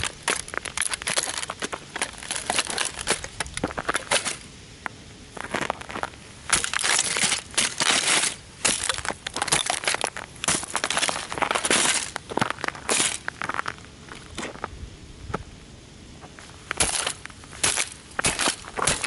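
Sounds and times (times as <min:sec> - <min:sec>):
toy car crunching and breaking: 0:00.0 - 0:04.5, 0:05.4 - 0:13.8, 0:16.7 - 0:19.0.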